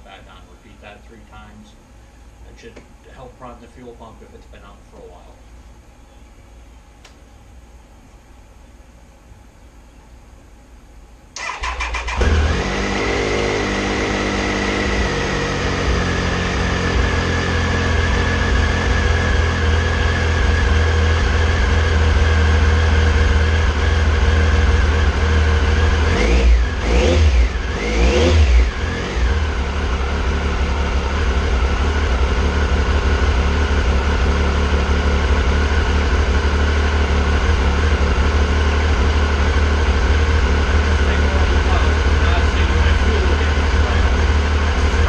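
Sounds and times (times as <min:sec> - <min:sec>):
motorcycle engine idling and revving: 0:11.4 - 0:45.0.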